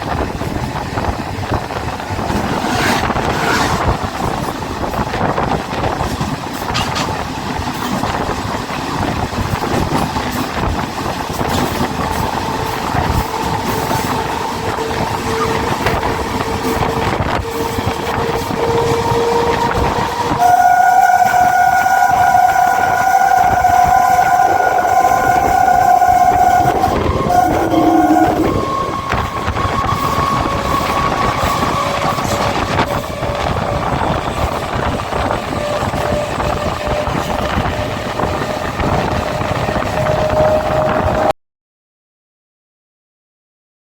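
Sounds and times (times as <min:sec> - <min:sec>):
electric train rolling rumble: 0:00.0 - 0:41.3
train horn: 0:02.2 - 0:04.1, 0:11.4 - 0:41.3
thin steady whine: 0:23.5 - 0:28.9.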